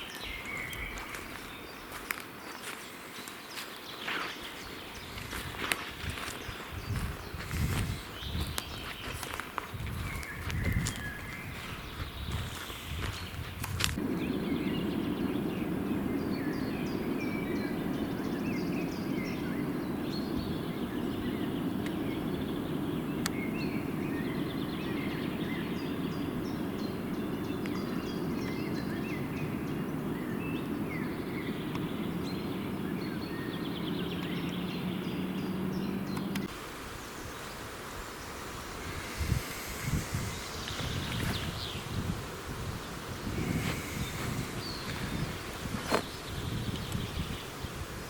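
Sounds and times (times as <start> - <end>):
birds chirping and trilling: 0.0 - 47.9
steady low noise: 10.0 - 36.6.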